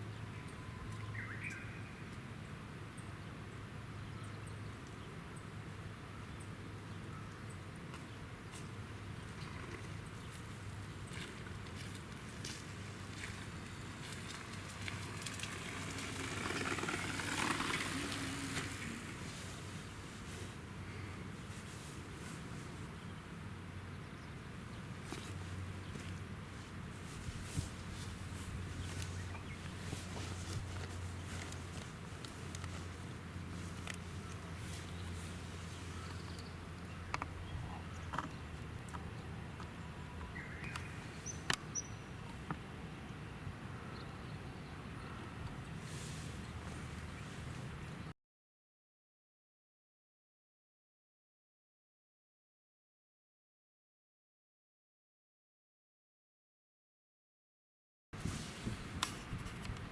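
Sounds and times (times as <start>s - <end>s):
outdoor background hiss: 0.0s - 48.1s
low hum: 10.6s - 21.8s.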